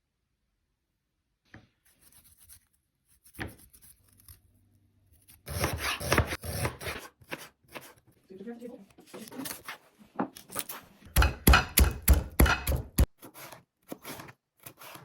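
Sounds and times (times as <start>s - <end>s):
rubbing and scraping on cutting board: 1.9s - 4.4s, 5.2s - 8.2s, 9.0s - 11.0s, 13.0s - 15.0s
knife chopping on cutting board: 5.5s - 8.0s, 11.1s - 15.0s.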